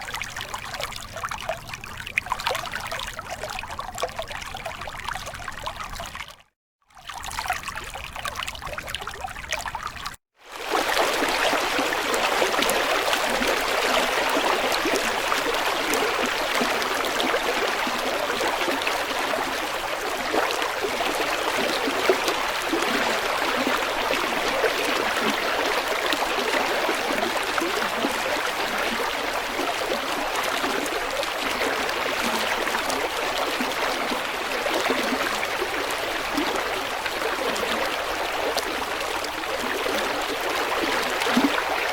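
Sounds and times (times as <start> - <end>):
stream water flowing: 0.0 - 41.9.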